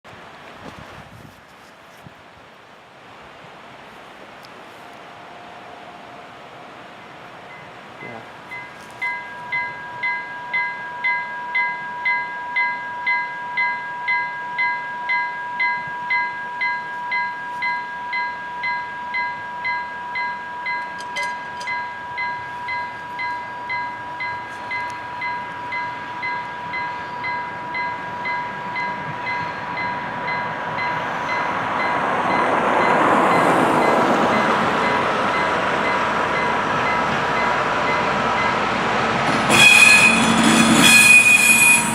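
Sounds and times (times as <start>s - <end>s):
approaching rail vehicle: 0.1s - 41.9s
level crossing bell ringing: 7.5s - 38.6s.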